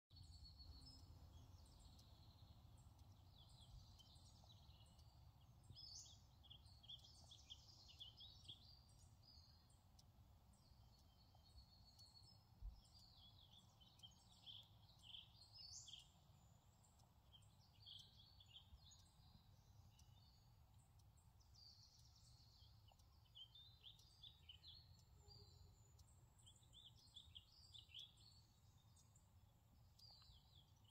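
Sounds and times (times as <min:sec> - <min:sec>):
songbird chirping: 0:00.1 - 0:30.9.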